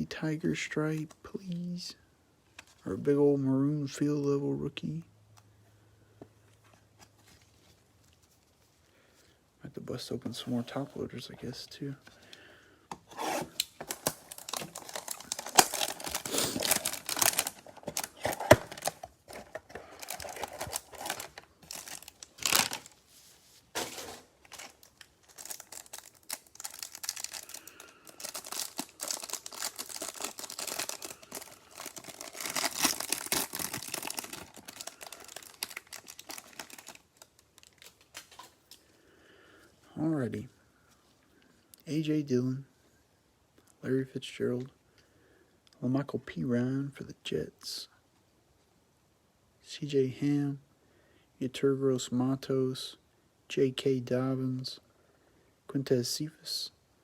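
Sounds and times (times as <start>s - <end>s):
plastic ripping: 13.2s - 23.0s, 23.8s - 38.6s
plastic packaging crinkling: 13.6s - 23.1s, 23.7s - 38.8s.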